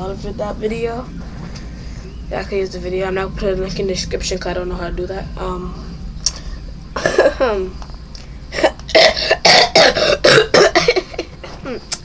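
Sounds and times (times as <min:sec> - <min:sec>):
person coughing: 0:07.0 - 0:07.4, 0:08.6 - 0:11.7
voiced throat sound: 0:08.5 - 0:12.0.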